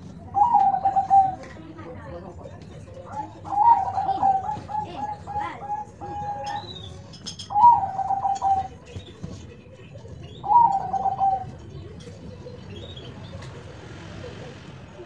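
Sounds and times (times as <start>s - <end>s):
dove cooing: 0.3s - 1.6s, 2.9s - 6.8s, 7.5s - 8.8s, 10.4s - 11.9s.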